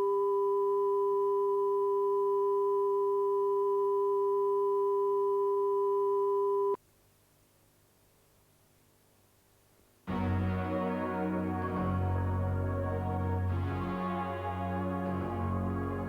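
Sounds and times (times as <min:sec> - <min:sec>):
steady electronic tone: 0:10.1 - 0:16.0.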